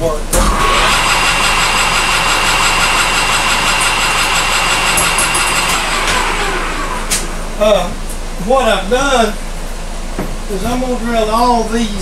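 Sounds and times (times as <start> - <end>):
metal lathe whining: 0.3 - 7.6.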